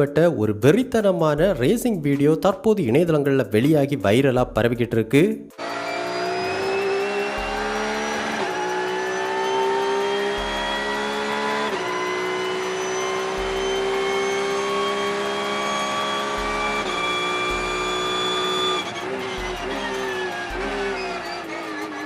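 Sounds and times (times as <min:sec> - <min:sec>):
race car engine accelerating: 0:05.6 - 0:22.0.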